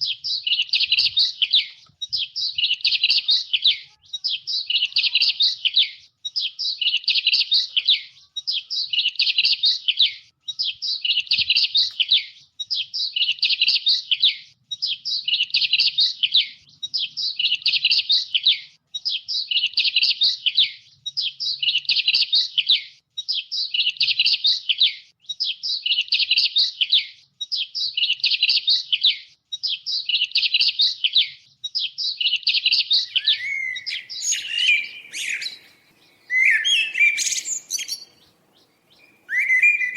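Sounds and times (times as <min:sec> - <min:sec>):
songbird chittering chirps: 0:00.0 - 0:39.9
lower sliding bird call: 0:33.1 - 0:39.9.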